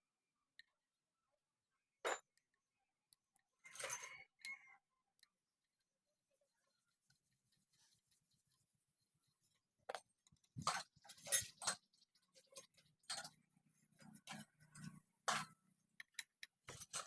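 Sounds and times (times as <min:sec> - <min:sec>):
metal tools clinking and knocking: 0:09.9 - 0:17.0.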